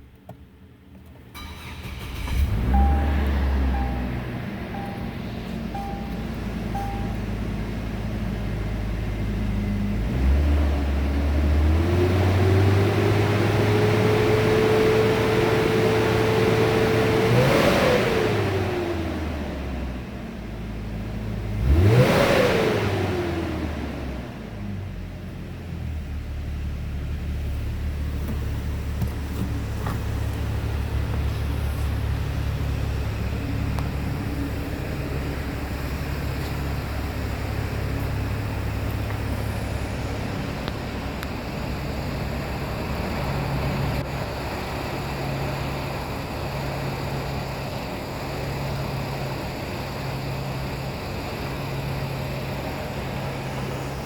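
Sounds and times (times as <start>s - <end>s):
engine running: 0.9s - 54.0s.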